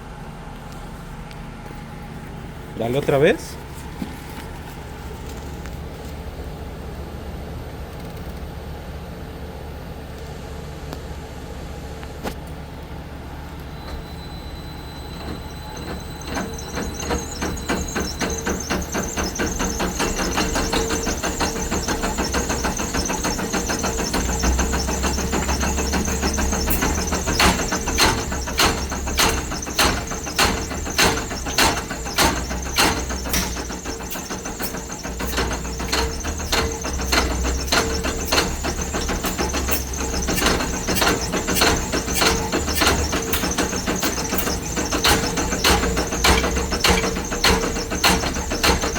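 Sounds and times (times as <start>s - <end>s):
regular engine knock: 15.1s - 48.9s.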